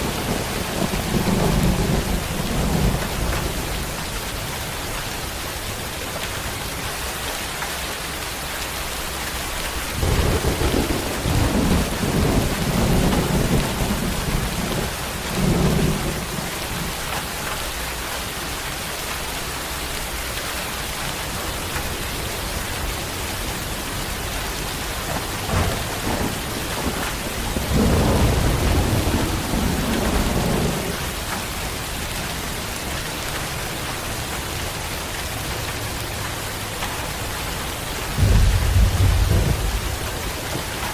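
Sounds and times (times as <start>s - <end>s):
thunder rumbling: 0.0s - 4.8s, 9.7s - 17.5s, 21.6s - 32.9s, 37.9s - 40.9s
steady rain falling: 0.0s - 40.9s.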